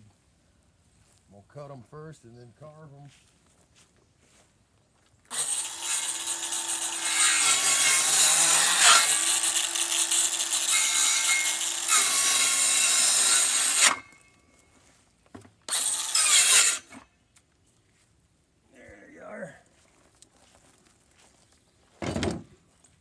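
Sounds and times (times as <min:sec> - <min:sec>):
power saw cutting wood: 0:05.3 - 0:14.2, 0:15.7 - 0:17.0.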